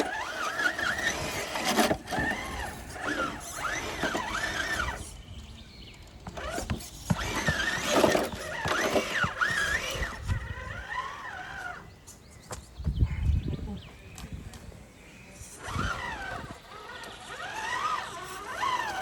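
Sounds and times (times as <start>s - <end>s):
toy car electric motor whining: 0.0s - 5.2s, 6.3s - 11.9s, 15.4s - 19.0s.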